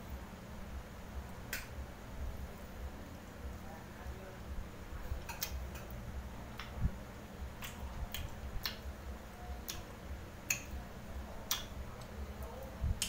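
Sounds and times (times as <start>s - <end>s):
low steady hum: 0.0s - 13.0s
mouth clicks and smacks: 5.2s - 6.0s, 7.6s - 8.9s, 9.6s - 10.8s, 11.5s - 12.1s.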